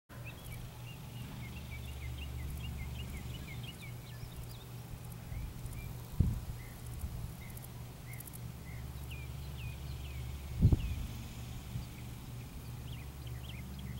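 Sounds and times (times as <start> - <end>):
steady low rumble: 0.1 - 13.9
bird chirping rapidly: 0.2 - 13.9.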